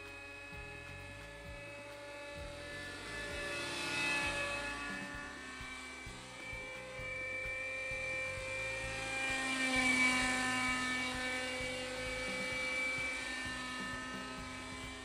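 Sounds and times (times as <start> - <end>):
helicopter rotor: 0.0 - 15.0
model helicopter engine running: 0.0 - 15.0.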